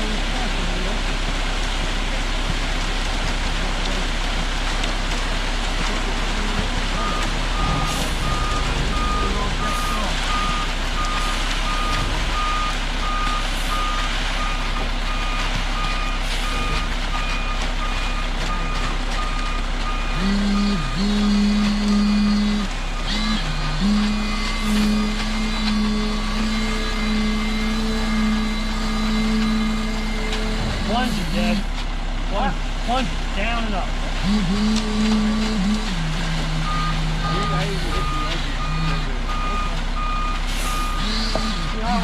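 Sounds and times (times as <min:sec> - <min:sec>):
diesel engine running: 0:00.0 - 0:42.0
reversing alarm beeping: 0:06.5 - 0:31.6, 0:36.6 - 0:41.8.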